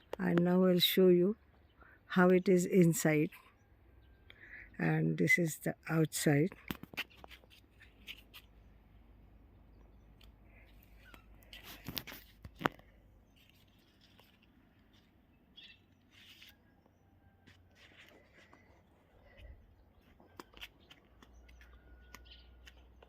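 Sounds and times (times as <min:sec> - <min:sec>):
faint bird chirps: 0:13.3 - 0:17.4.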